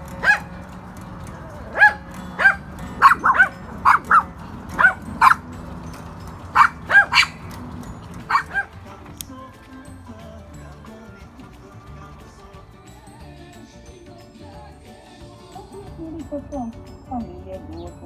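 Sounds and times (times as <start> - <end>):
small dog yapping: 0.1 - 0.6, 1.7 - 5.4, 6.5 - 7.5, 8.2 - 8.8.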